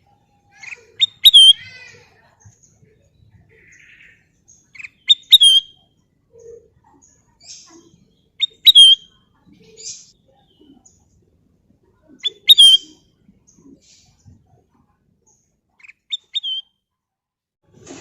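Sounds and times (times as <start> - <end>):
faint bird chirps: 0.0 - 16.9
bird whistled calls: 0.7 - 1.6, 4.8 - 5.8, 8.4 - 9.1, 12.2 - 13.0, 16.1 - 16.7.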